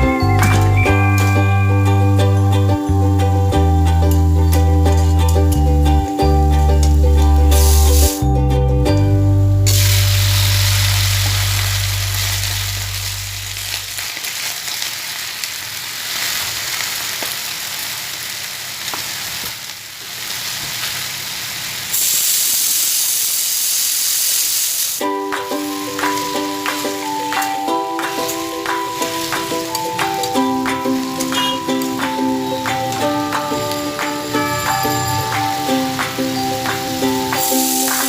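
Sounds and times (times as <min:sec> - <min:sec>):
food sizzling in hot oil: 0:00.0 - 0:08.3, 0:09.1 - 0:38.0
background music: 0:00.0 - 0:13.7, 0:25.0 - 0:38.0.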